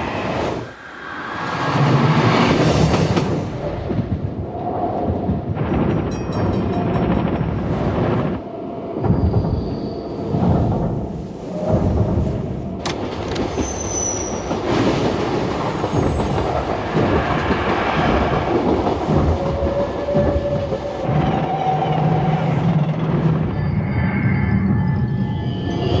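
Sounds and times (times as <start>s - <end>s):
train wheels rumbling and clattering: 0.0s - 26.0s
wheel squealing on rail: 9.0s - 10.7s, 12.8s - 26.0s.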